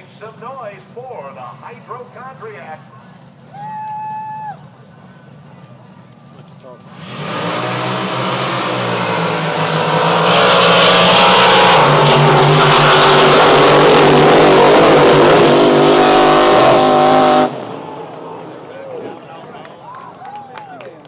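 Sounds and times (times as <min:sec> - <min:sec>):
drag boat engines at full throttle: 0:06.7 - 0:18.9.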